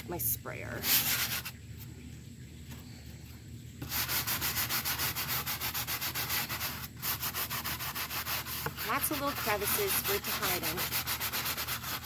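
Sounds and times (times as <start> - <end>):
rapid scrubbing: 3.8 - 12.0.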